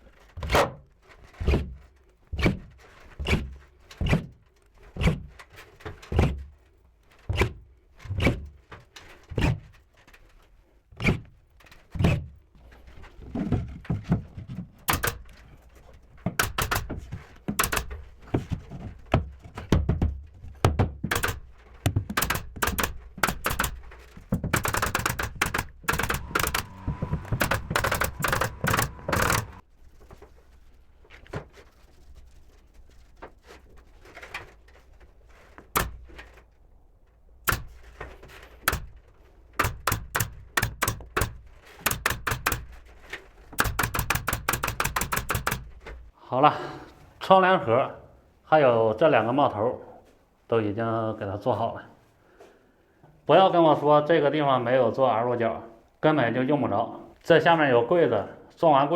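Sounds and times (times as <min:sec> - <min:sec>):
wooden thunks and knocks: 0:00.2 - 0:06.6, 0:07.2 - 0:09.8, 0:11.0 - 0:29.6, 0:35.6 - 0:36.4, 0:37.5 - 0:46.1
fast sharp clacks and knocks: 0:14.8 - 0:15.5, 0:16.2 - 0:29.6, 0:37.5 - 0:38.0, 0:38.6 - 0:42.9, 0:43.6 - 0:46.1.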